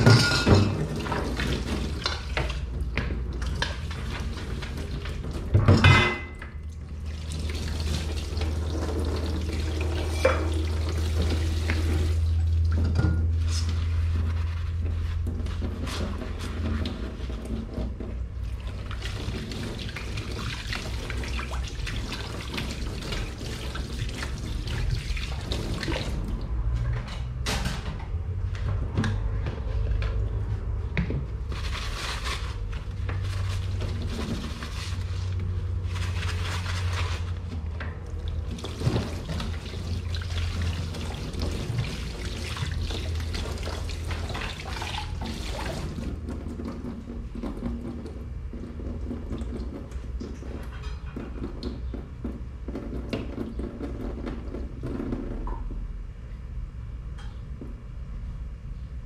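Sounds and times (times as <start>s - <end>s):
dishes clinking: 0.0s - 0.9s, 5.6s - 6.4s
water running into a sink: 0.0s - 13.0s, 18.4s - 26.4s, 38.1s - 52.1s.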